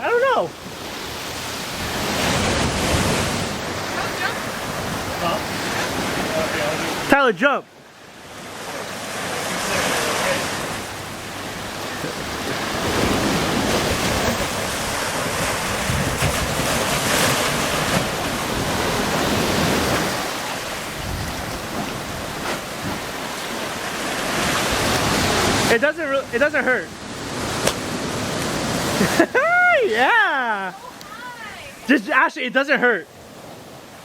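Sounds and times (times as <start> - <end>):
ocean surf washing ashore: 0.0 - 34.0
wind on microphone: 11.4 - 23.6.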